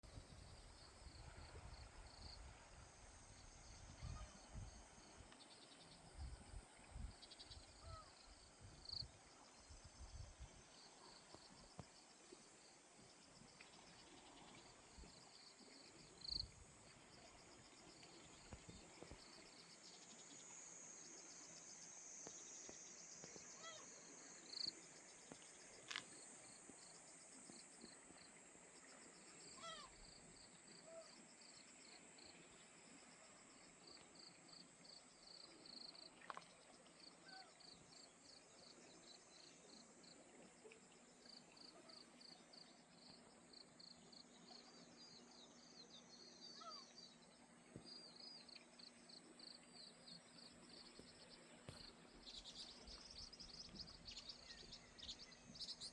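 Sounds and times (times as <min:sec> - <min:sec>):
insects chirping: 0:00.0 - 0:55.9
short bird calls: 0:46.6 - 0:46.9.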